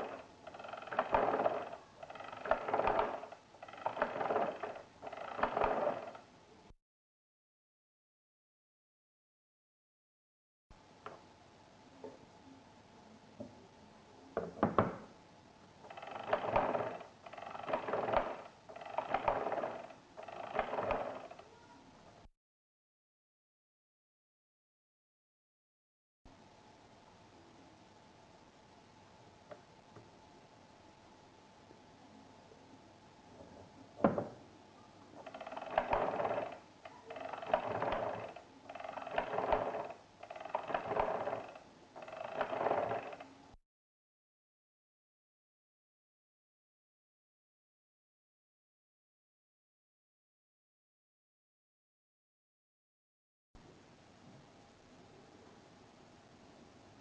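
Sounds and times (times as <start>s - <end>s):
crank turning with gears rattling: 0.0s - 6.2s, 15.8s - 21.4s, 35.2s - 43.3s
mechanical calculator clicks: 0.0s - 6.2s, 15.9s - 21.4s, 35.2s - 43.3s.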